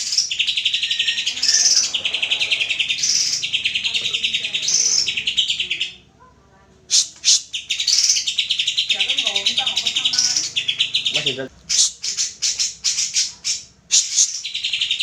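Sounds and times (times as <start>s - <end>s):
bird singing trilled phrases: 0.0s - 6.1s, 6.9s - 15.0s.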